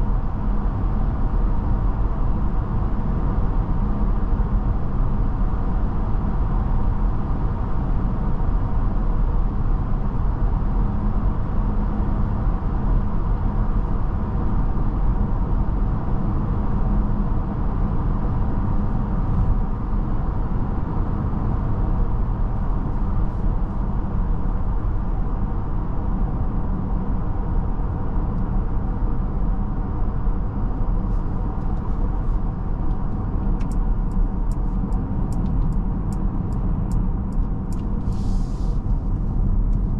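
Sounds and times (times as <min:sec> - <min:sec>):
road and tyre noise in car cabin: 0:00.0 - 0:39.9
quick regular ticks: 0:33.6 - 0:37.9.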